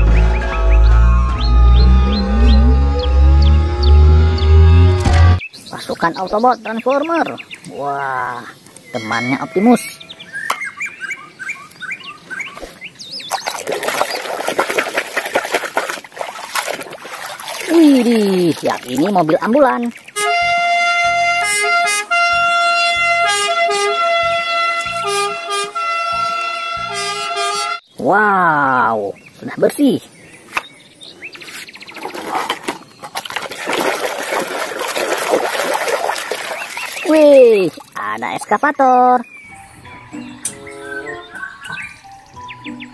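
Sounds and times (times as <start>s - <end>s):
birds chirping: 0.0s - 15.0s, 16.1s - 42.9s
water sloshing in a basin: 12.7s - 20.2s, 31.8s - 38.2s.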